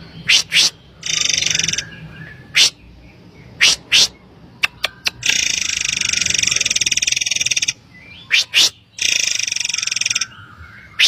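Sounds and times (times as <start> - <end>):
bird buzzing trill: 0.3 - 1.8, 5.2 - 7.8, 8.4 - 10.3.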